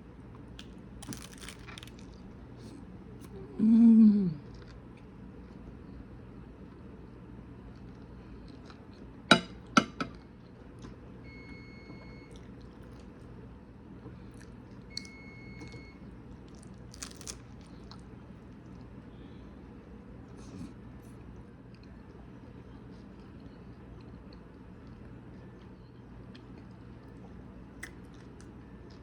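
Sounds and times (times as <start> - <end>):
steady low hum: 0.0 - 29.0
food crunching: 0.4 - 2.8, 14.3 - 19.0
chewing: 12.3 - 13.4, 14.2 - 15.8, 16.4 - 19.0, 26.3 - 29.0.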